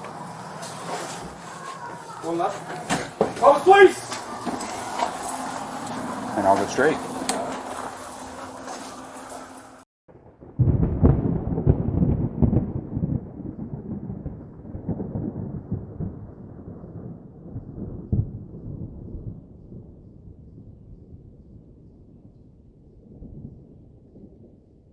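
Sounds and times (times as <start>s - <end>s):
deep rumble with crackling strikes: 10.2s - 24.8s.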